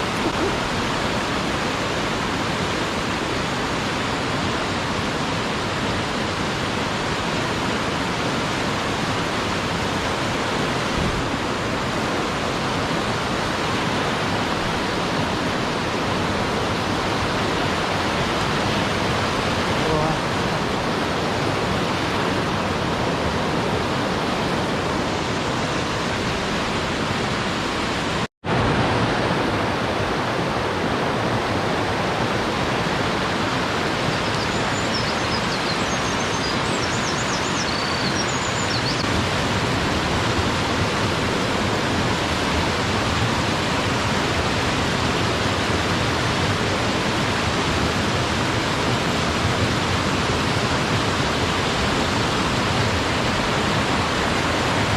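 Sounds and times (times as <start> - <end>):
mountain stream rushing: 0.0 - 54.9.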